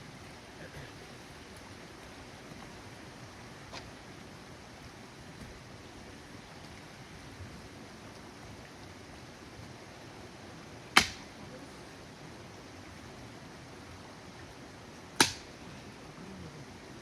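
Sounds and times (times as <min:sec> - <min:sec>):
wood fire crackling: 0:00.6 - 0:12.0, 0:14.9 - 0:15.8
sharp loud pop of fire: 0:11.0 - 0:11.2, 0:15.2 - 0:15.4.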